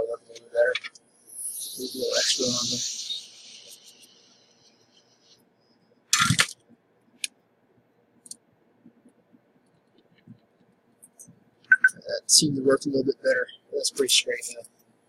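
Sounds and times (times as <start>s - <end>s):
high hiss: 0.0s - 5.4s.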